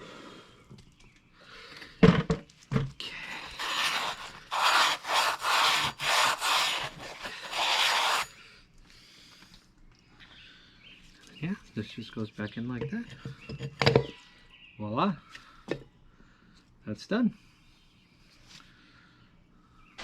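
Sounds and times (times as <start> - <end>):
harsh rasping strokes: 3.4 - 8.4.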